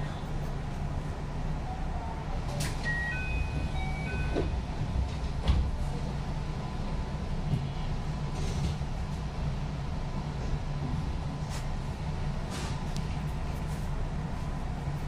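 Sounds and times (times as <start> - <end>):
train wheels rumbling on track: 3.5 - 15.0.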